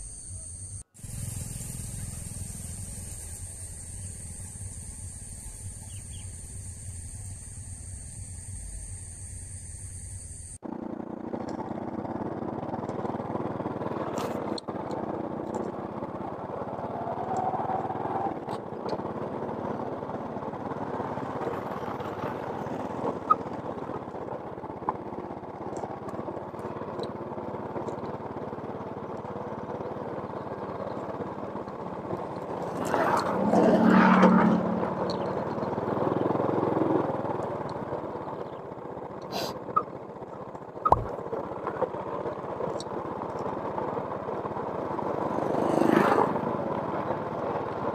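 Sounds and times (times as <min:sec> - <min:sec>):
outdoor background noise: 0:00.0 - 0:47.9
motor vehicle passing close: 0:10.6 - 0:42.8, 0:43.7 - 0:47.9.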